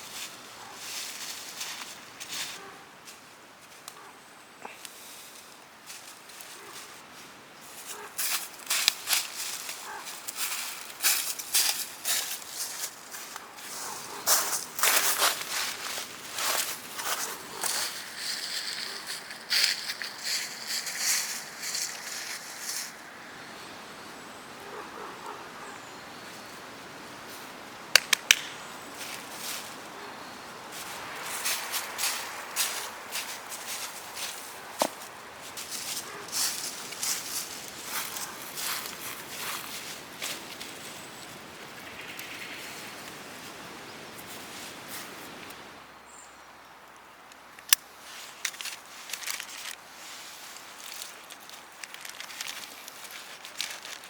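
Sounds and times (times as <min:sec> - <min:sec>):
quiet outdoor background: 0:00.0 - 0:54.0
rustling: 0:07.7 - 0:23.0, 0:30.7 - 0:41.2, 0:48.0 - 0:54.0
outdoor hiss: 0:26.4 - 0:41.6.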